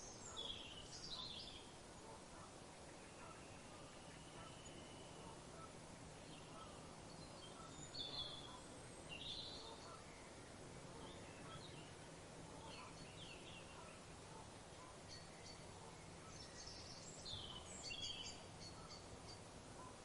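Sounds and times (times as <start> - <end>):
faint bird chirps: 0.0 - 20.0
steady background hiss: 0.0 - 20.0.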